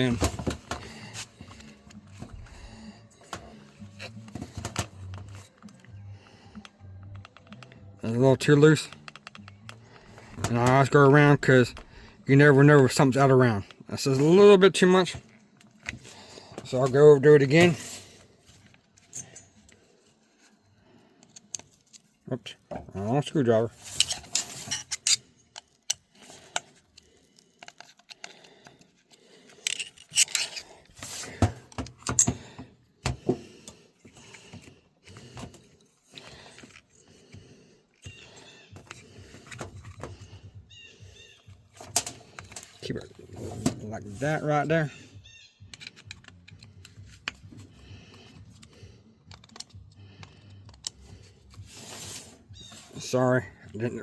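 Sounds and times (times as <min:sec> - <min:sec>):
screwdriver and metal parts clicking: 0:03.2 - 0:09.8, 0:18.6 - 0:19.8, 0:23.9 - 0:32.6, 0:45.3 - 0:51.6.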